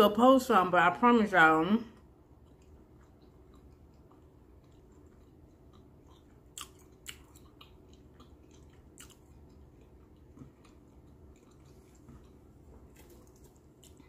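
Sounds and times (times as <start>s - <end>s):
person chewing food: 2.0s - 14.0s
wet mouth clicks: 2.4s - 12.4s.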